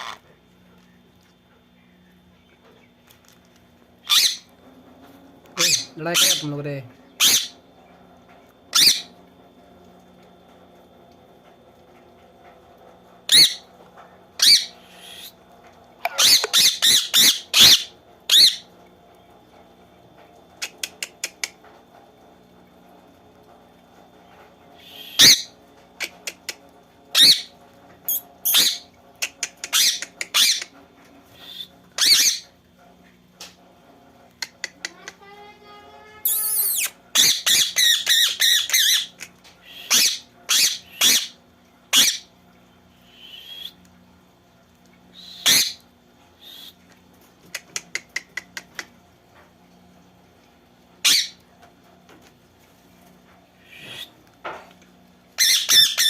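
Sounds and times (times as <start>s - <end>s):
parrots squawking: 0.0s - 0.2s, 4.0s - 4.5s, 5.6s - 6.5s, 7.2s - 7.6s, 8.7s - 9.1s, 13.3s - 13.6s, 14.4s - 15.3s, 16.0s - 18.7s, 24.8s - 26.5s, 27.1s - 27.5s, 28.1s - 30.7s, 31.4s - 32.5s, 36.2s - 42.3s, 45.2s - 45.8s, 51.0s - 51.4s, 55.4s - 56.0s.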